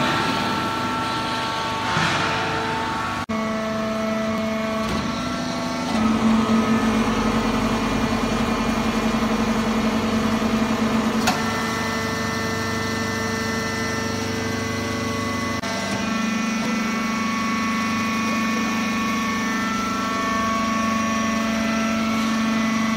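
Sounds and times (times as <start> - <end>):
hydraulic press motor hum: 0.0 - 22.9.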